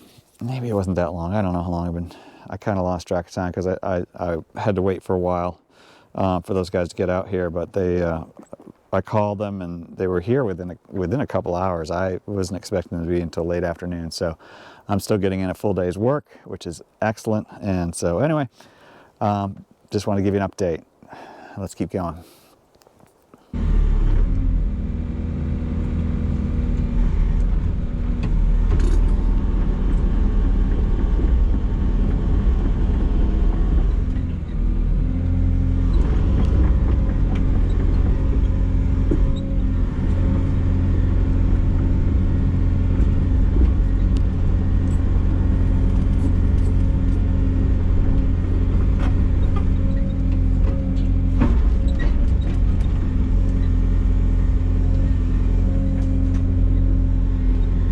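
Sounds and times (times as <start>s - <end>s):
excavator diesel engine running: 23.6s - 57.9s.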